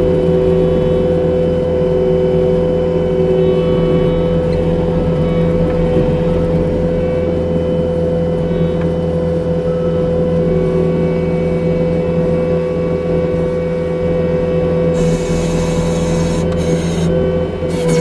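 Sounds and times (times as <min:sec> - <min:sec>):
diesel engine running: 0:14.9 - 0:18.0
hiss: 0:17.7 - 0:18.0.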